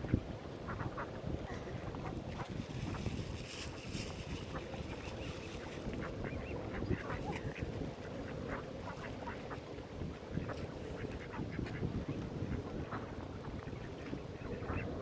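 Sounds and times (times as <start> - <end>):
ducks quacking: 14.0 - 15.0.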